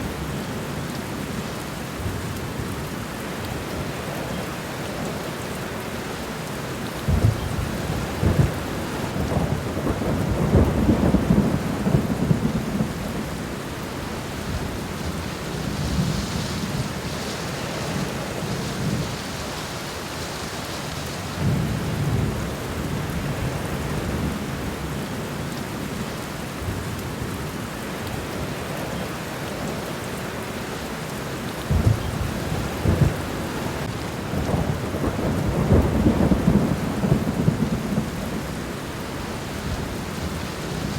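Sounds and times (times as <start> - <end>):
steady rainfall: 0.0 - 40.9
thunder rumbling: 7.1 - 13.6, 31.7 - 40.9.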